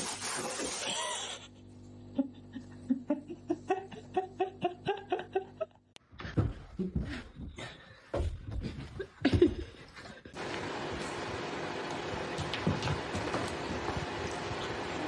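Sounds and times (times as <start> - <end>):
person laughing: 2.1 - 5.9, 8.6 - 10.4.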